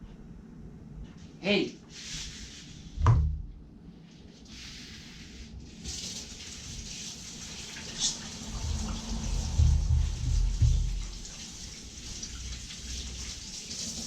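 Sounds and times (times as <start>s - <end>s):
dull thump: 3.0s - 3.6s, 9.6s - 11.1s
water running from a tap: 5.7s - 14.0s.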